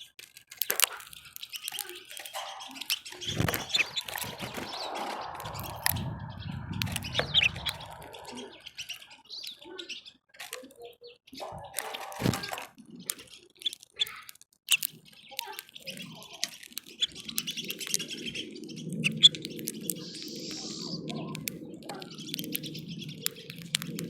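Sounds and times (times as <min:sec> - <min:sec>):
small birds chirping: 0:00.0 - 0:24.0
low steady rumble: 0:04.0 - 0:08.5.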